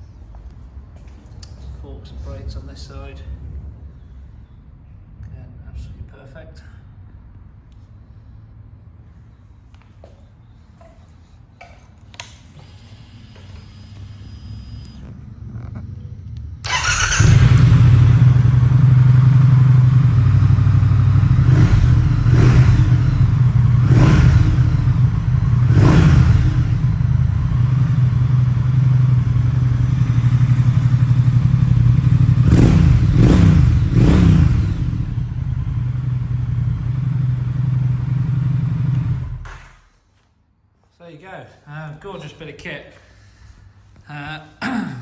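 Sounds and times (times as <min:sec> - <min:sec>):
motorcycle throttle blips: 0:16.6 - 0:39.9
motorcycle engine idling: 0:16.7 - 0:39.5.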